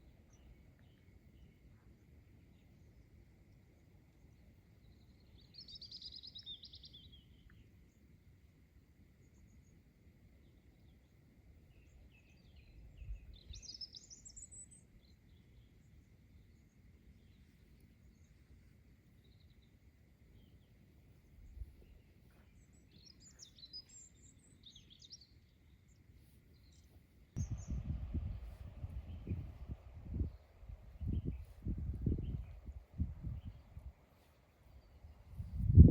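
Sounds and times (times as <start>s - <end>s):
songbirds chirping: 0.0s - 35.9s
loud low noise: 27.4s - 33.4s
breeze rumble on microphone: 27.4s - 34.0s, 34.7s - 35.9s.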